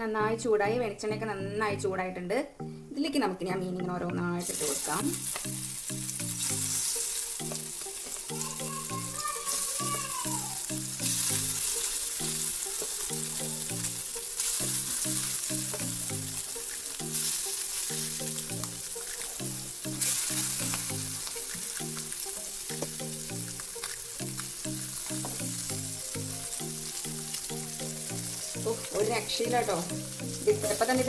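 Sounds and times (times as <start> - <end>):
background music with low notes: 0.0 - 31.0
fish sizzling in hot oil: 4.4 - 31.0.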